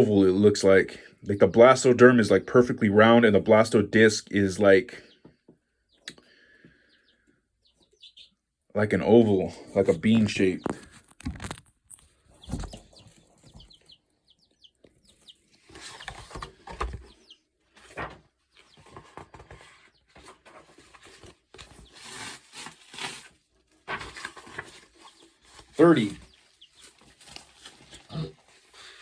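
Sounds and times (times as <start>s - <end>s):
bird chirping: 4.5s - 11.1s, 11.9s - 22.4s, 24.4s - 29.0s.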